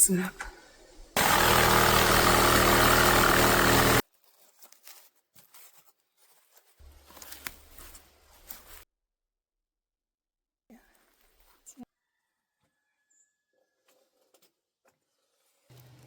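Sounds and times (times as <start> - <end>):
small engine running: 1.2 - 4.0.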